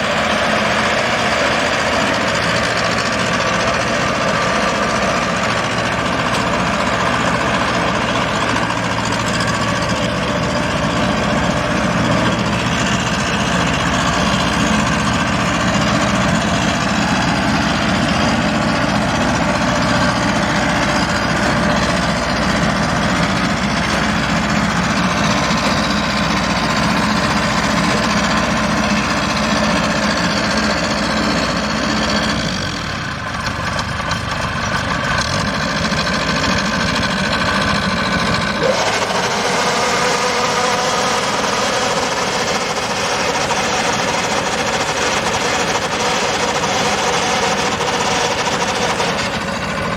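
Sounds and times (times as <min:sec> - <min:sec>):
combine harvester engine running: 0:00.0 - 0:49.9.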